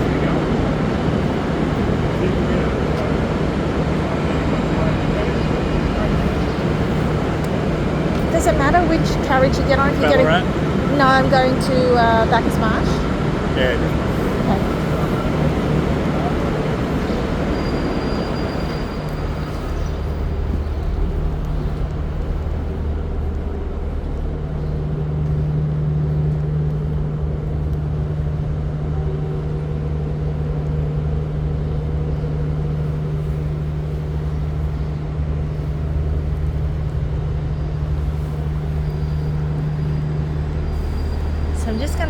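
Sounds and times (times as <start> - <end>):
diesel train engine idling: 0.0 - 42.0.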